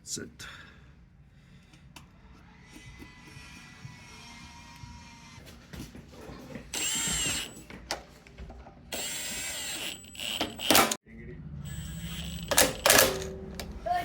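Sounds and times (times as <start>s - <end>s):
power drill motor whine: 2.4s - 5.4s, 6.7s - 7.7s, 8.9s - 11.0s, 11.6s - 13.8s
sharp clicks: 12.0s - 13.7s.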